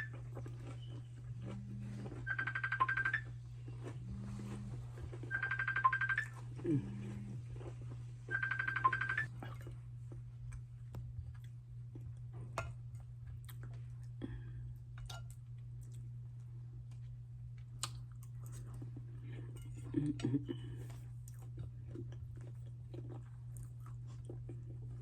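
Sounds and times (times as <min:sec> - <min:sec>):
steady low hum: 0:00.0 - 0:25.0
rapid electronic beeps: 0:02.3 - 0:03.3, 0:05.3 - 0:06.4, 0:08.3 - 0:09.3.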